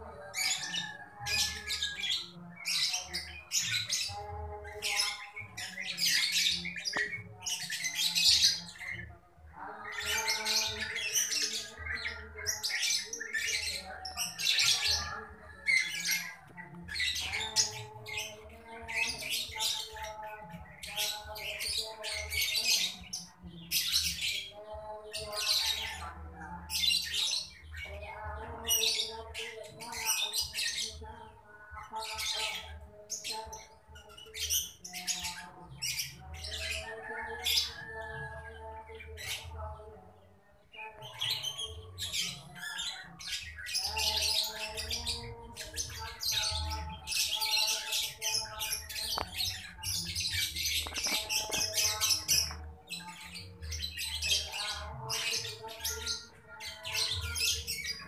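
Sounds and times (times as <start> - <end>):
birds squawking: 40.8 - 58.0.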